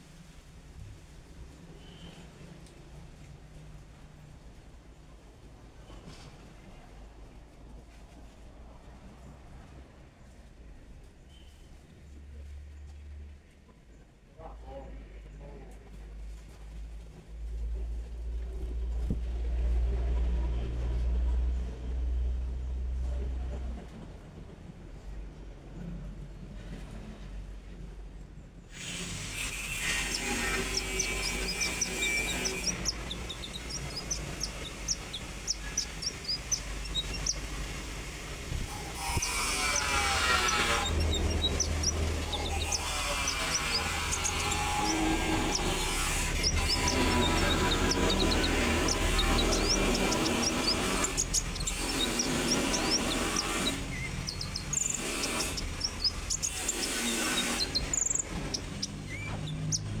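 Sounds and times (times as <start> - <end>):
bird chirping: 28.8 - 60.0.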